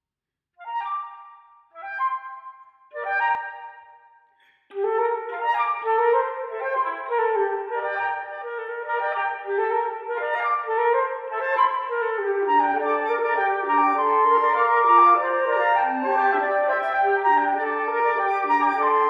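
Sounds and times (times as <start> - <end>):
wind instruments playing classical: 4.7 - 19.0.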